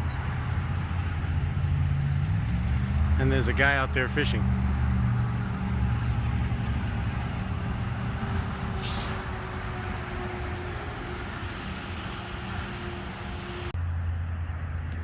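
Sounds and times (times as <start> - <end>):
low outdoor rumble: 0.0 - 15.0
brief high hiss: 8.8 - 9.3.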